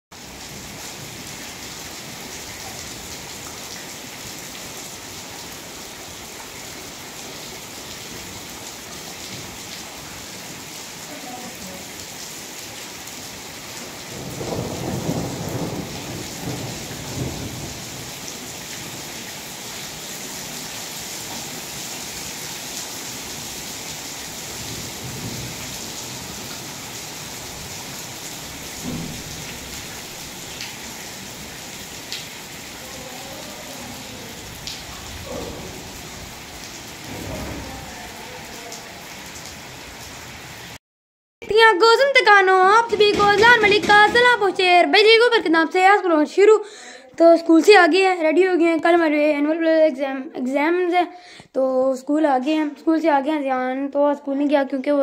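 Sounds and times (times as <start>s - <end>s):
rain on stone paving: 0.1s - 40.8s, 42.2s - 45.1s.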